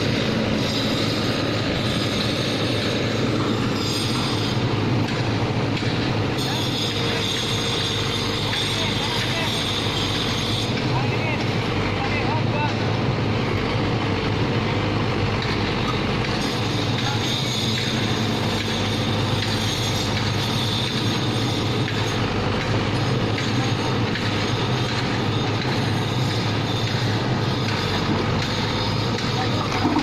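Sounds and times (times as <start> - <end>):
excavator diesel engine and hydraulics: 0.0 - 30.0.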